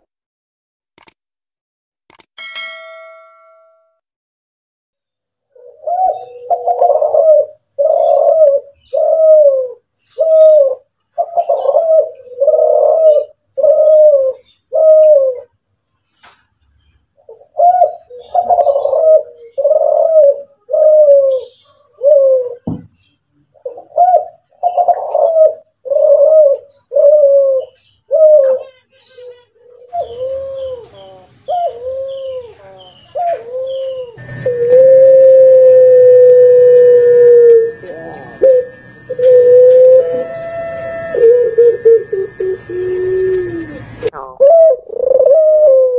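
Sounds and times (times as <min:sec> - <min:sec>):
dove cooing: 0:05.5 - 0:15.6, 0:17.2 - 0:22.9, 0:23.5 - 0:45.9
single knock: 0:22.6 - 0:22.9
long steady tone: 0:34.2 - 0:44.3.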